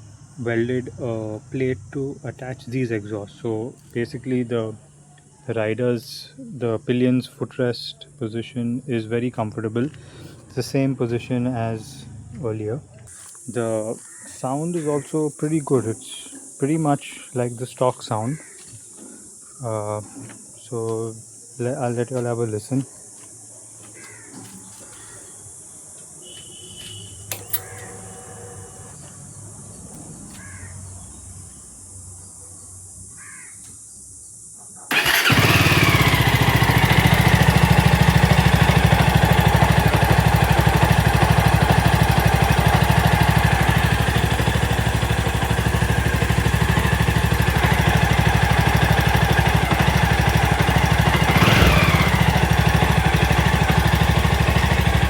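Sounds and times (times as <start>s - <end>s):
faint chirps: 12.9s - 35.0s
clicks: 27.3s - 27.9s
motorcycle engine starting and idling: 27.3s - 28.2s, 34.9s - 55.0s.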